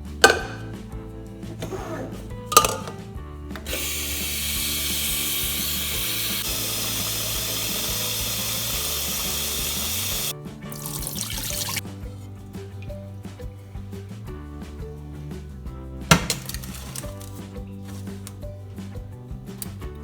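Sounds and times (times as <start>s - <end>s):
background music: 0.0s - 20.0s
tap running water into a pot: 0.2s - 0.8s, 2.5s - 3.0s, 3.6s - 11.8s, 16.1s - 18.4s.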